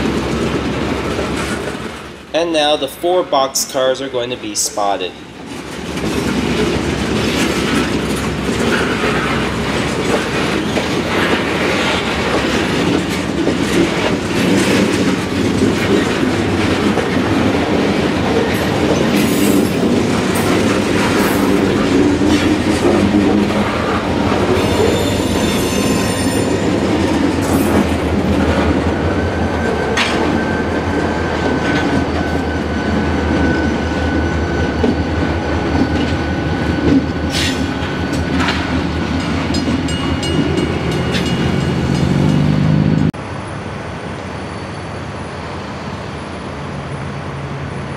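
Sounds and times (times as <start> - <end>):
train wheels clacking on track: 0.0 - 2.8, 4.8 - 43.1
high wheel squeal: 24.5 - 26.8.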